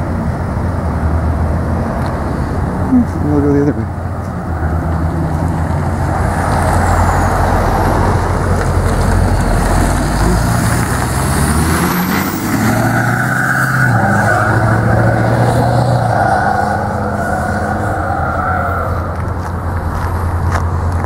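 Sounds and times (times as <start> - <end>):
rushing traffic noise: 0.0 - 21.0
vehicle engine hum: 0.0 - 21.0.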